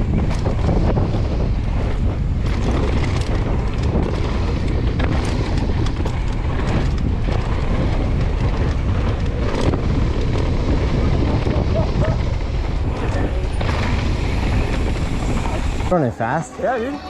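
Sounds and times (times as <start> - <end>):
bike rattling and knocking: 0.0 - 16.1
tyres rolling on dirt trail: 0.0 - 17.0
wind buffeting microphone: 0.0 - 17.0.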